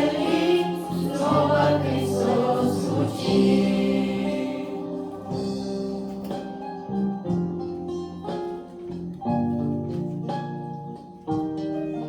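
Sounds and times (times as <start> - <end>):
guitar playing chords: 0.0 - 12.0.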